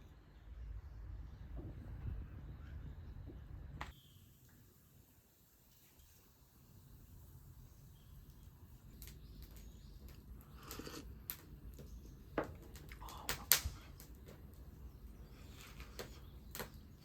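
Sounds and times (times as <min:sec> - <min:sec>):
campfire crackling and popping: 0:08.2 - 0:17.0.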